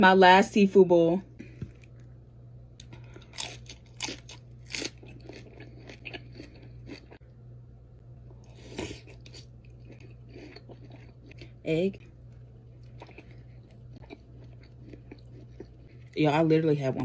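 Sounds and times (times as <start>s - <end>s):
steady low hum: 0.0s - 17.0s
chewing with sharp crunches: 2.8s - 7.2s, 8.4s - 16.2s.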